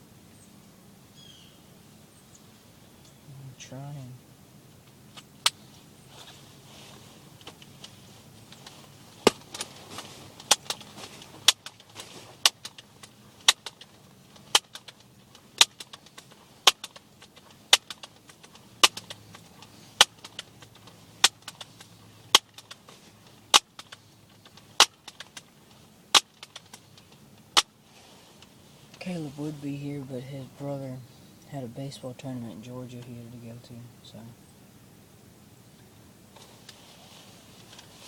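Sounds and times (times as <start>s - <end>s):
sharp clicks: 7.4s - 27.7s.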